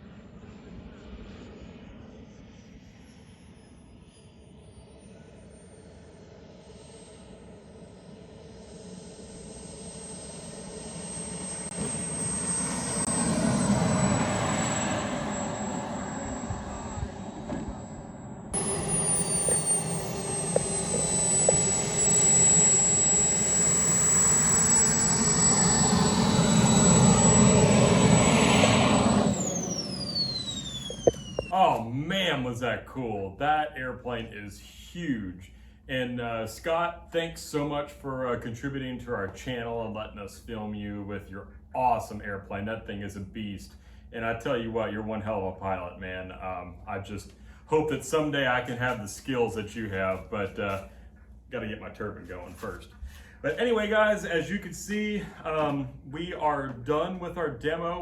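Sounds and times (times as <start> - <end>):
model jet turbine whine: 0.0 - 58.0
rushing jet noise: 11.7 - 31.8.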